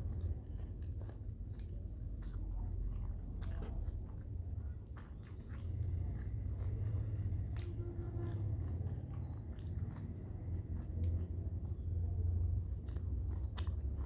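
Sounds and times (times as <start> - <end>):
person chewing food: 0.0 - 14.0.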